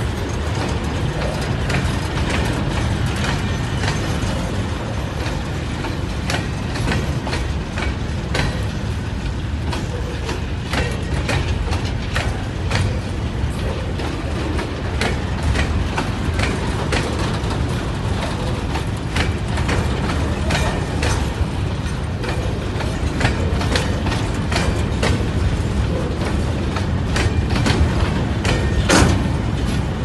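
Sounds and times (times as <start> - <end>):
freight wagons rumbling on rail: 0.0 - 30.0
metallic clicks and clanks: 0.0 - 30.0.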